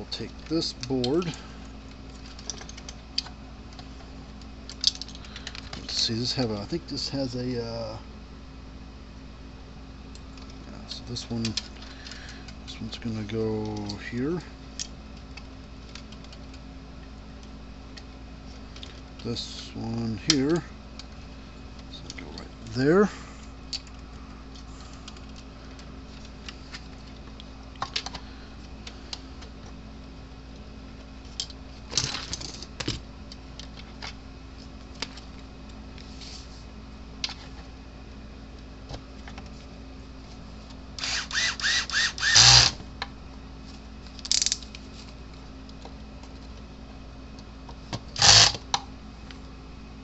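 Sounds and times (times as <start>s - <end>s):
steady low hum: 0.0s - 50.0s
light clicks and taps of small parts: 2.1s - 5.9s, 11.3s - 12.5s, 13.2s - 14.0s.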